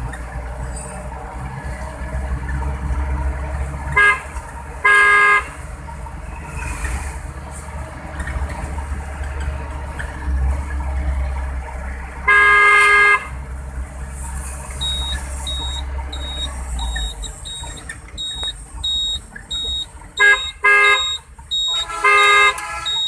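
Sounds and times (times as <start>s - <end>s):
low engine rumble: 0.0s - 23.0s
vehicle horn honking: 4.0s - 5.6s, 12.2s - 13.3s, 18.9s - 23.0s
high electronic beeps: 14.8s - 23.0s.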